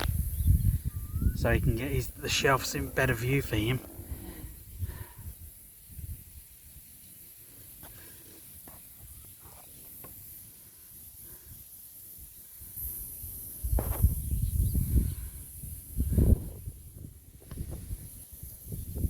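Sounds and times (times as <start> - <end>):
steady high hiss: 0.0 - 16.0
low uneven rumble: 1.4 - 5.4.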